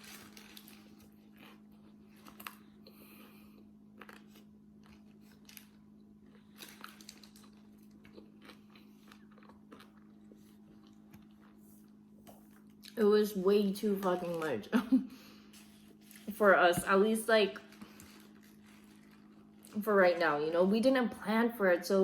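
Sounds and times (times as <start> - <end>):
steady low hum: 0.0 - 22.0
faint chewing and mouth clicks: 0.6 - 13.0.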